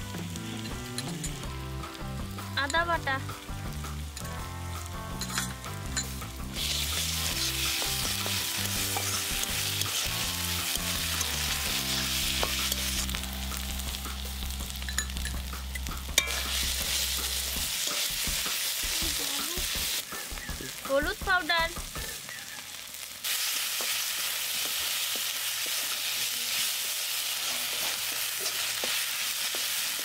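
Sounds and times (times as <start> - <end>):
food sizzling in oil: 0.0 - 30.0
spatula clink: 5.2 - 6.2, 16.2 - 16.5.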